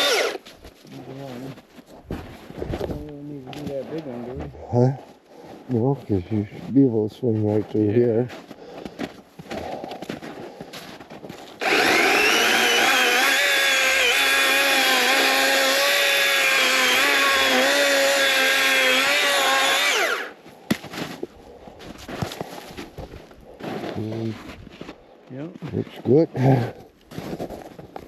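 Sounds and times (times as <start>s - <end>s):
electric chainsaw cutting wood: 0.0s - 0.4s, 11.6s - 20.4s.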